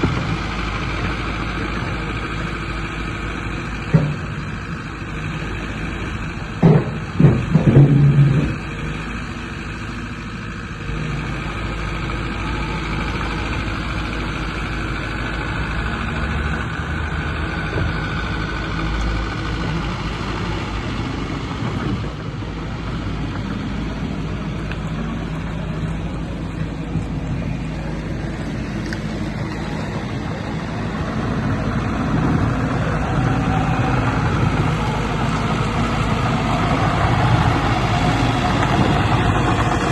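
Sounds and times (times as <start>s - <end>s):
diesel engine running: 0.0s - 39.9s
loud knocks: 6.6s - 8.6s.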